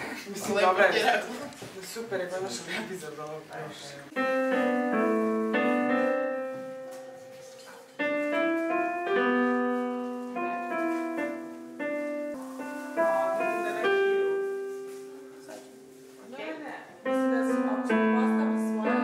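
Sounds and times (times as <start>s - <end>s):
slow piano playing: 4.1s - 19.0s.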